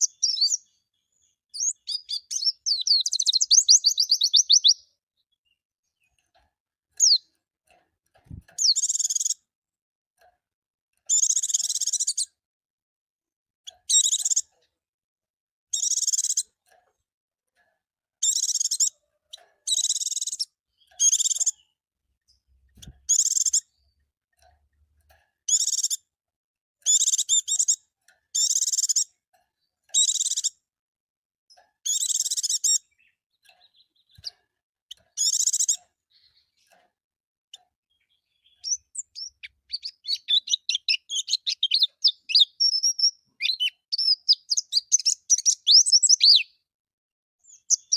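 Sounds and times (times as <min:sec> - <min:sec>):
white-eye bird singing: 0:00.0 - 0:06.2, 0:07.0 - 0:07.3, 0:08.3 - 0:09.4, 0:11.1 - 0:12.3, 0:13.7 - 0:14.5, 0:15.7 - 0:16.6, 0:18.2 - 0:22.4, 0:23.0 - 0:24.0, 0:25.5 - 0:26.0, 0:26.9 - 0:29.2, 0:29.9 - 0:30.6, 0:31.8 - 0:36.8, 0:37.5 - 0:46.7, 0:47.4 - 0:47.9.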